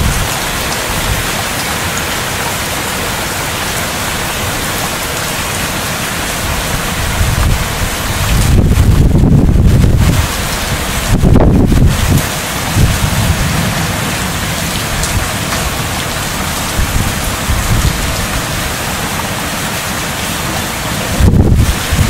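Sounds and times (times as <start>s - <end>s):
wind buffeting microphone: 0.0s - 1.4s, 6.4s - 19.3s, 20.2s - 22.0s
heavy rain pouring: 0.0s - 22.0s.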